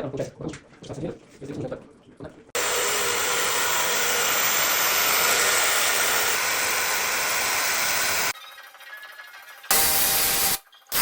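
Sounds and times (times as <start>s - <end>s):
power tool running steadily: 2.6s - 8.4s.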